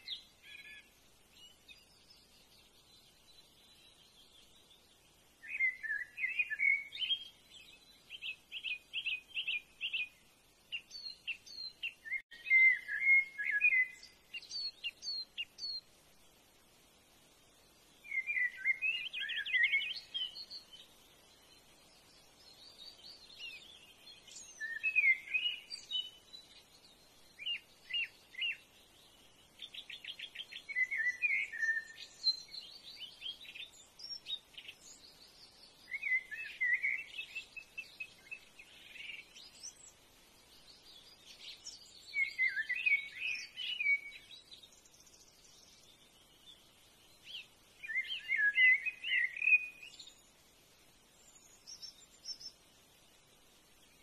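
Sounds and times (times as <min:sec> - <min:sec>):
birds twittering: 0:18.0 - 0:50.3.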